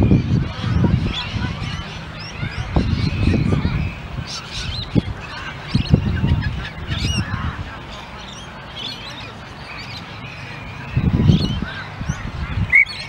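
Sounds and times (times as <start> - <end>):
birds squawking and chirping: 0.0 - 13.0.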